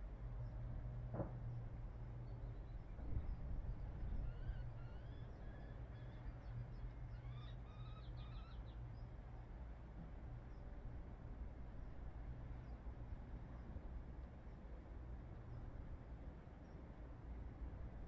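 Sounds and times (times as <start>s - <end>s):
faint bird chirps and twitters: 2.2s - 9.1s.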